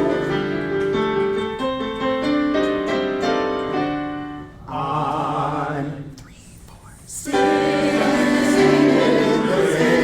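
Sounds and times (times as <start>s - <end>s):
piano playing chords: 0.0s - 4.7s, 7.3s - 10.0s.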